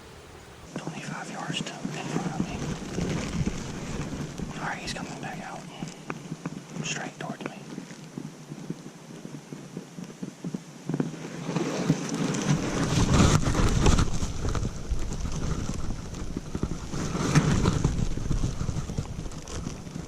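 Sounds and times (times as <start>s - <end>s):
microphone rustling and rumbling: 0.0s - 20.0s.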